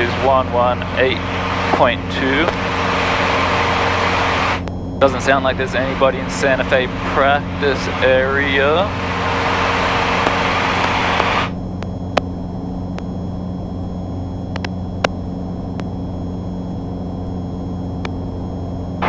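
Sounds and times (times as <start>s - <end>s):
airplane engine drone: 0.0s - 19.0s
faint clicks: 14.5s - 16.0s.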